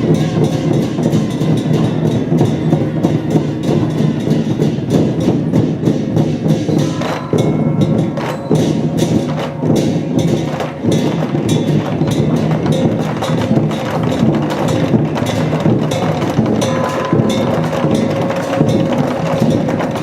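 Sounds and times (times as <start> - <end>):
big drum struck rapidly: 0.0 - 20.0
cymbals clashing: 0.0 - 20.0.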